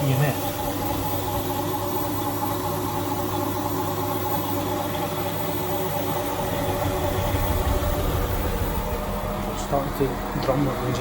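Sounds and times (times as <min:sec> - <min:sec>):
washing machine motor hum: 0:00.0 - 0:11.0.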